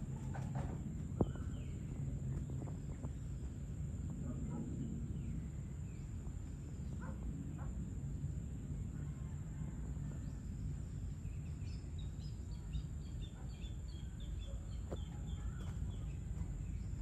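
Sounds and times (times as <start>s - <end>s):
bird chirping: 1.2s - 3.6s, 11.1s - 17.0s.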